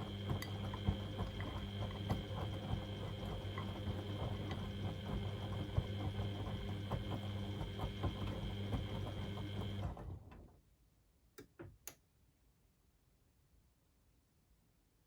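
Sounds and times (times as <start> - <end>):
washing machine humming and rattling: 0.0 - 10.6.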